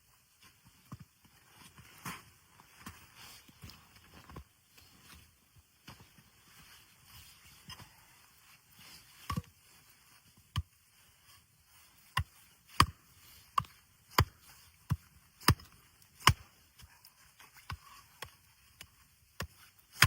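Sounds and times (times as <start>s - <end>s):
wood being chopped: 13.6s - 16.5s.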